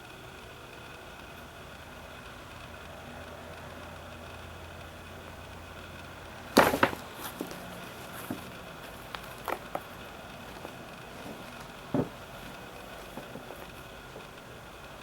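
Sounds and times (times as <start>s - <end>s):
paper bag crackling: 6.6s - 14.3s.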